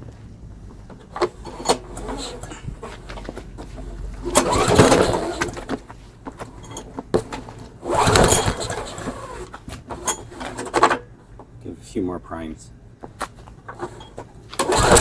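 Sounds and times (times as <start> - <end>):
recoil starter rope whir and cranking: 0.9 - 11.1, 13.5 - 15.0.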